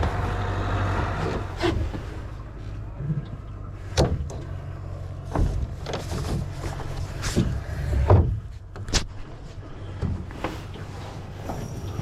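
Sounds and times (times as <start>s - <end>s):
steady low rumble: 0.0s - 12.0s
knocks and clatters from boat hull: 3.1s - 12.0s.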